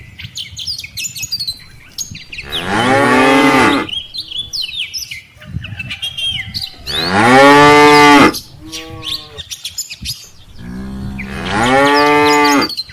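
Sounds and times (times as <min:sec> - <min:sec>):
cattle mooing: 0:02.4 - 0:04.4, 0:06.8 - 0:09.4, 0:10.6 - 0:12.8.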